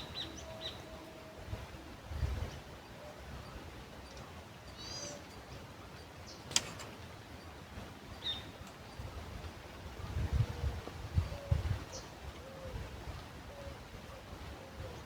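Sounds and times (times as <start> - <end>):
wind rumble on microphone: 0.0 - 3.9, 8.8 - 15.0
birds chirping: 0.0 - 9.2
steady outdoor hiss: 0.0 - 15.0.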